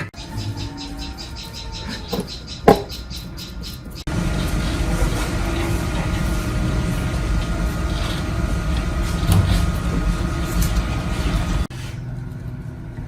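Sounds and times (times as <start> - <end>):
machine running with hum: 4.0 - 13.0.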